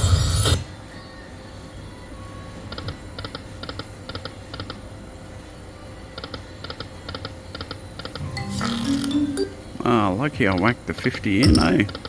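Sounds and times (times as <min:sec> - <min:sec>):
electronic double beeps: 0:11.4 - 0:11.8.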